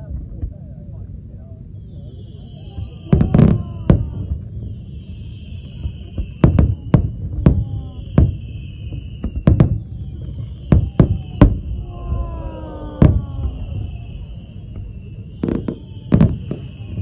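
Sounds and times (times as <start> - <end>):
steady low rumble: 0.0 - 2.5, 7.1 - 16.0
falling firework whistle: 1.6 - 17.0
fireworks bangs echoing: 2.7 - 17.0.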